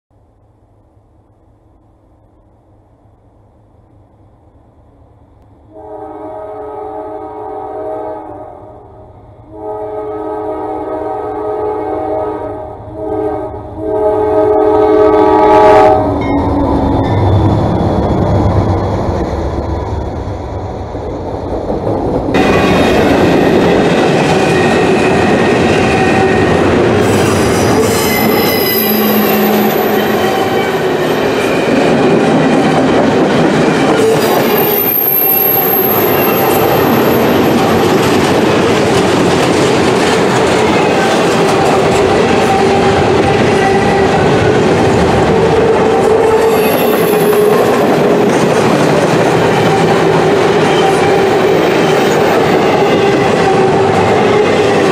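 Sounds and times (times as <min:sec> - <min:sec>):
freight train wheels rumbling: 0:00.4 - 0:54.9
high-pitched wheel squeals: 0:24.5 - 0:31.8, 0:33.9 - 0:38.0, 0:46.0 - 0:47.8.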